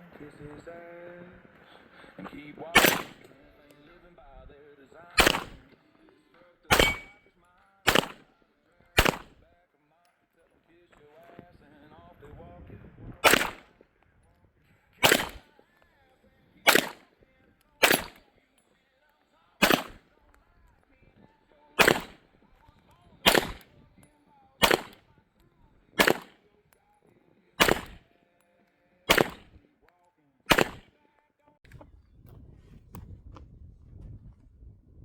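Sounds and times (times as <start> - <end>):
gunshots: 2.7 - 3.4, 5.2 - 5.8, 6.7 - 7.2, 7.9 - 8.3, 9.0 - 9.4, 13.2 - 13.8, 15.0 - 15.6, 16.6 - 17.1, 17.8 - 18.3, 19.6 - 20.1, 21.8 - 22.3, 23.2 - 23.8, 24.6 - 25.1, 26.0 - 26.4, 27.6 - 28.1, 29.1 - 29.6, 30.5 - 30.9.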